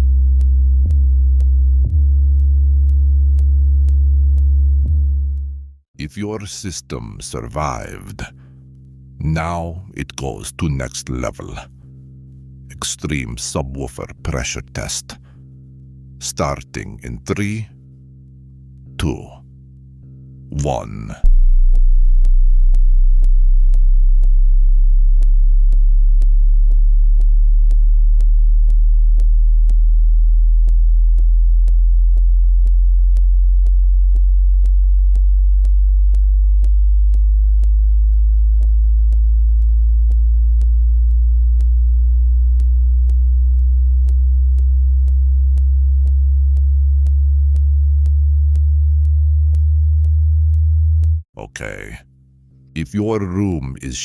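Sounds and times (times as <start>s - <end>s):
deep sub-bass tone: 0.0s - 5.8s, 6.9s - 52.1s
light ticking beat: 0.0s - 52.0s
higher bass tone: 20.1s - 52.0s.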